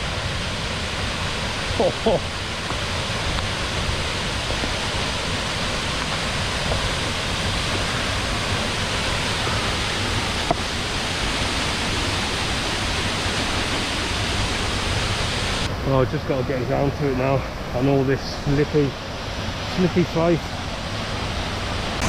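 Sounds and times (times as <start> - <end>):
waterfall rushing: 0.0 - 15.7.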